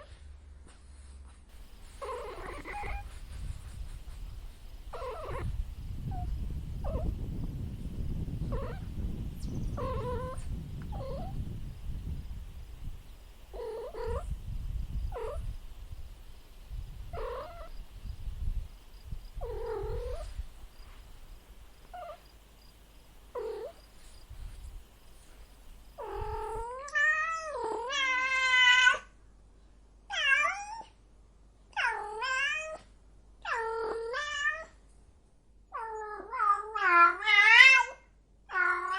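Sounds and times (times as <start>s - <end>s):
cat meowing: 9.8s - 11.4s, 31.8s - 32.8s.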